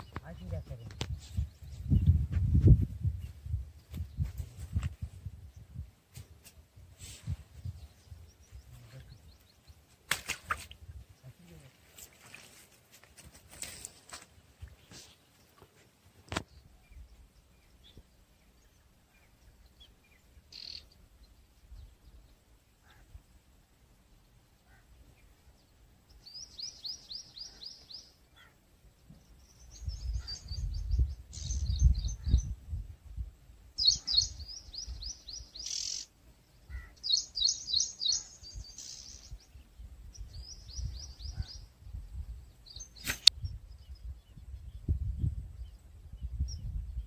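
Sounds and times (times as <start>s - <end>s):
songbird singing trilled phrases: 0.0s - 2.2s, 16.5s - 22.4s, 25.5s - 32.8s, 33.7s - 47.0s
sharp click: 43.0s - 43.4s.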